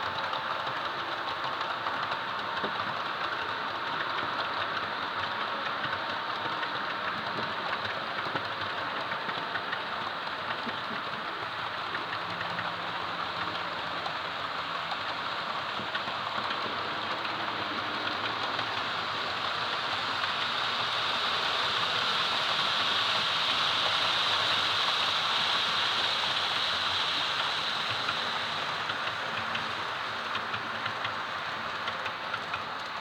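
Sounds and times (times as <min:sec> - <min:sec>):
model train running on track: 0:00.0 - 0:33.0.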